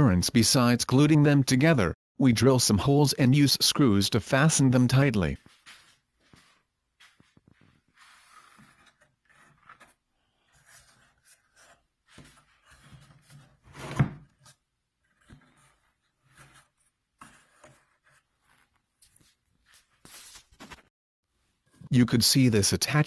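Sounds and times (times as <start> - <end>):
wood scraping and rubbing: 5.4 - 18.8.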